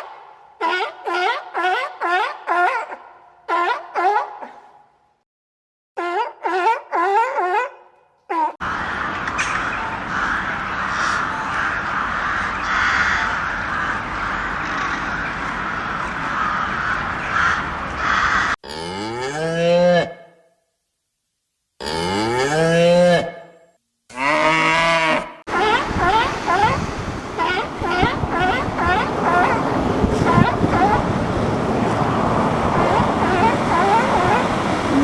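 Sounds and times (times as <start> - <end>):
steady noisy hiss: 8.6 - 18.4, 25.5 - 35.0.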